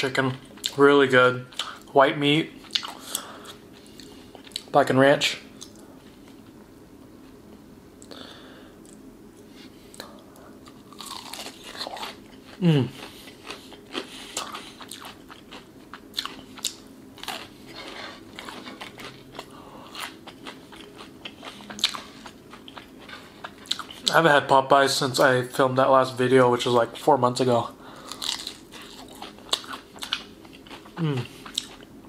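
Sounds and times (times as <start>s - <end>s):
crunchy chewing: 9.9s - 24.2s, 28.0s - 31.9s.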